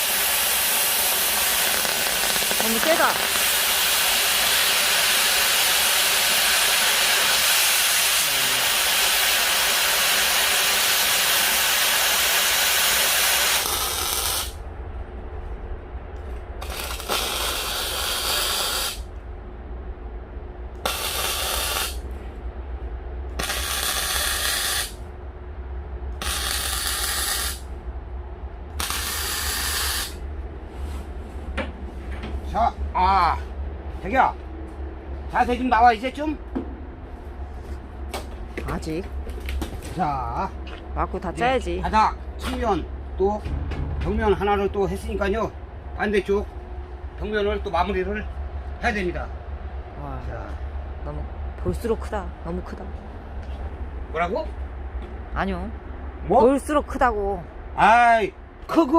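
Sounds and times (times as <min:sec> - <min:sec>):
cutting torch hissing: 0:00.0 - 0:14.6, 0:16.6 - 0:19.1, 0:20.8 - 0:22.0, 0:23.4 - 0:25.0, 0:26.2 - 0:27.7, 0:28.8 - 0:30.2
low hum: 0:09.8 - 0:58.9.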